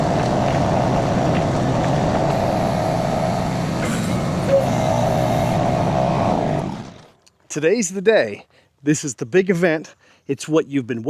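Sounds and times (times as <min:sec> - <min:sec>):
small engine running steadily: 0:00.0 - 0:07.2.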